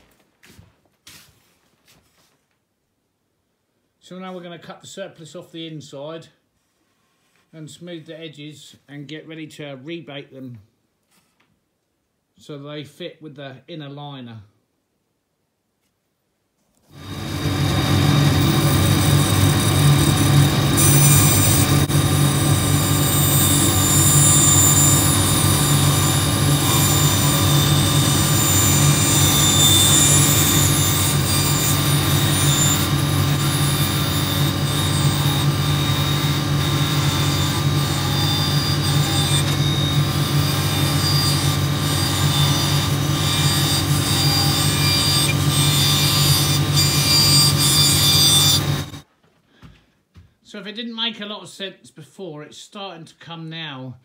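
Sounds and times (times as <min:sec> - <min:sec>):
bandsaw cutting wood: 0:16.9 - 0:49.0.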